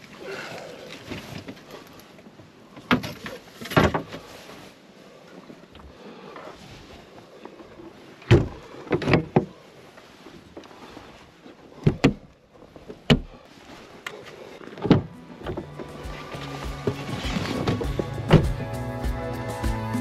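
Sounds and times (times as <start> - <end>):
knocks and clunks of gear: 2.7 - 4.2, 8.2 - 9.6, 11.8 - 13.4, 14.6 - 18.6.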